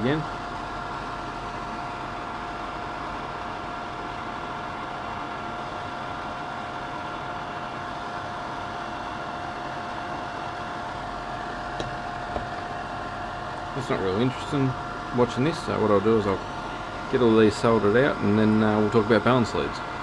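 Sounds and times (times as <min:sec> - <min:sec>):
machine whirring and hissing: 0:00.0 - 0:20.0.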